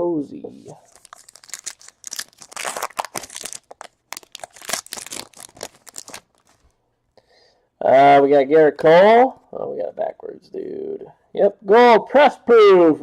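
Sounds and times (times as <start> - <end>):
plastic wrapper tearing and crinkling: 0.8 - 6.7.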